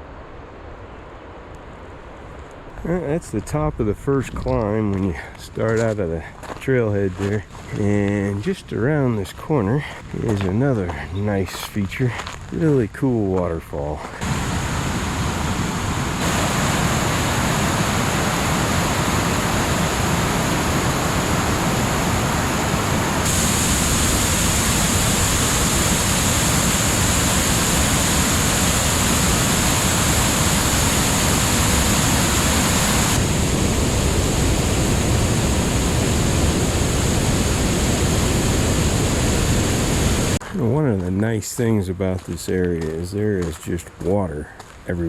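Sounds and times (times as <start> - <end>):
waterfall roaring: 14.1 - 40.4.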